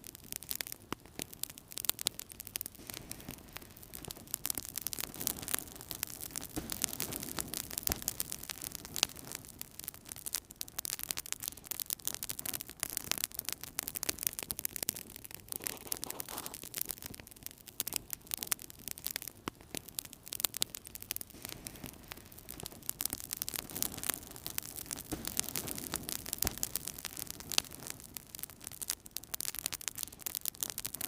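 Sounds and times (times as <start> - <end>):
low hiss of burning: 0.0 - 31.0
wood fire crackling and popping: 0.0 - 31.0.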